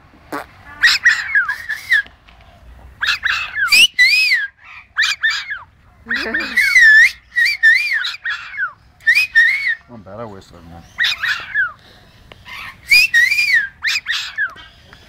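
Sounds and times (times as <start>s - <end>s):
parrot whistling: 0.7s - 2.0s, 3.0s - 9.8s, 12.5s - 14.5s.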